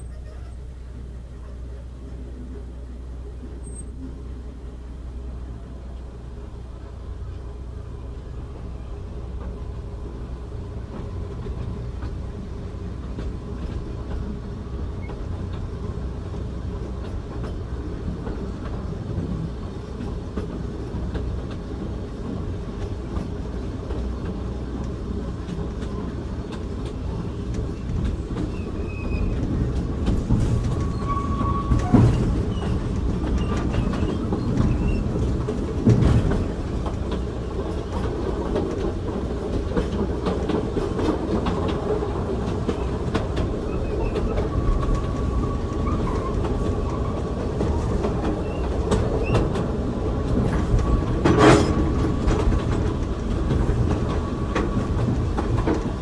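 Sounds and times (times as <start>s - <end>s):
train interior rumble: 0.0s - 56.0s
wheels clicking over rail joints: 8.5s - 56.0s
wheel squeal: 28.5s - 29.4s, 30.6s - 35.2s, 43.7s - 47.2s.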